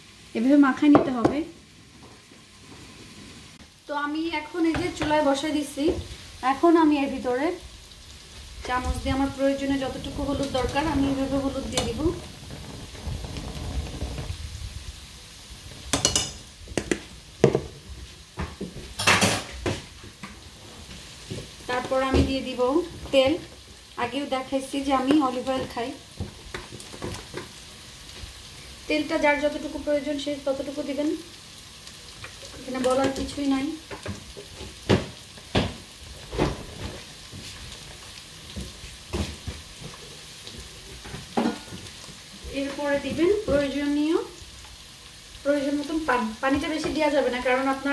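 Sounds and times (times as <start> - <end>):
food sizzling in a pan: 0.0 - 47.9
spoon knocking against pan: 15.9 - 17.7
metal spoon clinking on pot: 16.0 - 16.4.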